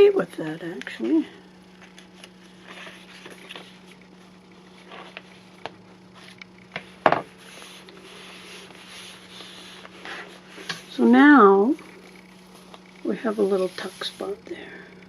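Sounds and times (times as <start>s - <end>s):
paper rustling: 1.8s - 5.4s, 6.1s - 10.9s, 11.8s - 14.4s.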